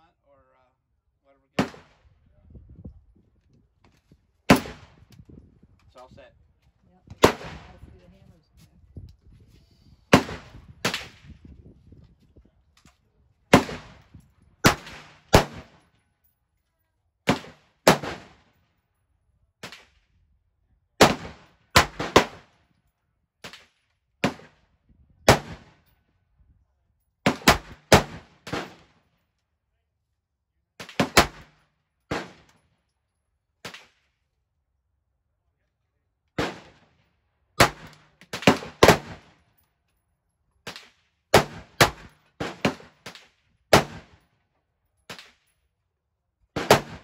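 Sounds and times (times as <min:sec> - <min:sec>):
gunshots with echo: 0:46.6 - 0:47.0.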